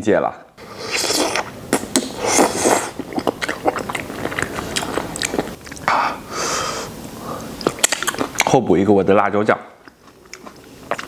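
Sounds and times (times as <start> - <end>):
wet chewing and lip smacking: 0.9 - 6.0, 7.4 - 8.5, 9.8 - 11.0.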